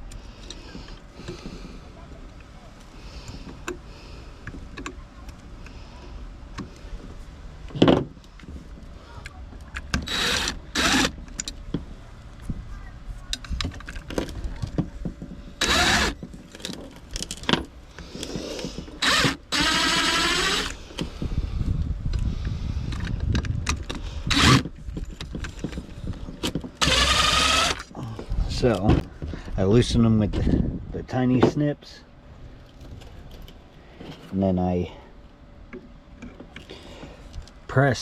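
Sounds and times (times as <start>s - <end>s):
cordless drill running: 10.0s - 11.2s, 15.6s - 16.2s, 18.9s - 20.8s, 24.3s - 24.7s, 26.8s - 27.9s.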